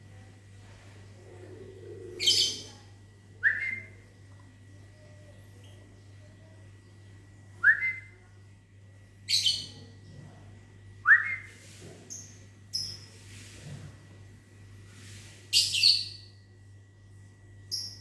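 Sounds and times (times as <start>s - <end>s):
lovebird chirping: 17.7s - 18.0s.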